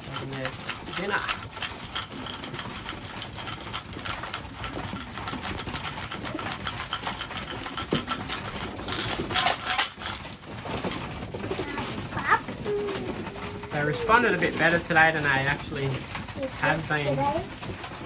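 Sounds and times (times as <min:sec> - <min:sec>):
beaks pecking at grain: 0:00.0 - 0:18.0
pigeons cooing: 0:05.5 - 0:07.7, 0:11.4 - 0:15.7.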